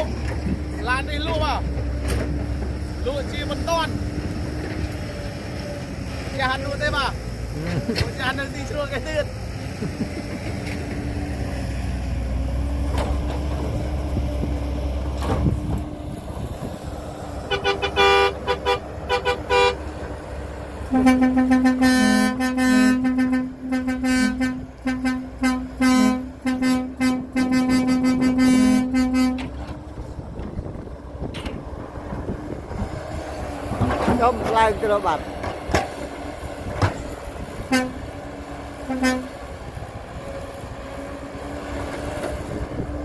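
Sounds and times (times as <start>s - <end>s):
engine running: 0.0s - 43.0s
truck horn honking: 17.4s - 20.0s, 20.8s - 29.7s, 37.6s - 39.5s.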